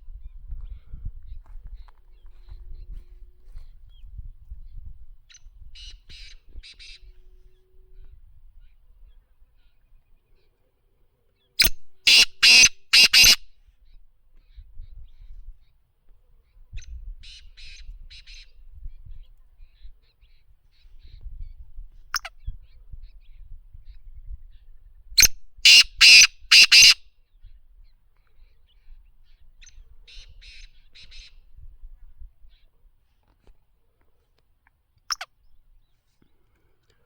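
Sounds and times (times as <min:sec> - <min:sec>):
bird calling harsh grating notes: 0:12.1 - 0:13.4, 0:25.7 - 0:27.0.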